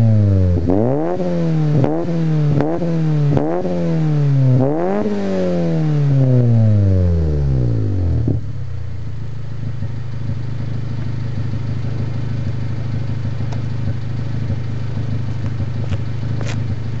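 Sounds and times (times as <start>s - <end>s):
car engine revving and idling: 0.0s - 17.0s.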